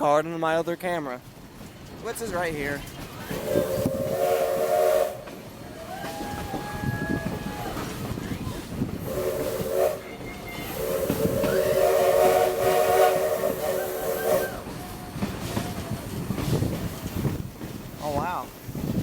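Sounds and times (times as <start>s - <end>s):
rail car rumble: 0.0s - 19.0s
steam locomotive chime whistle: 3.3s - 7.9s, 9.0s - 14.9s.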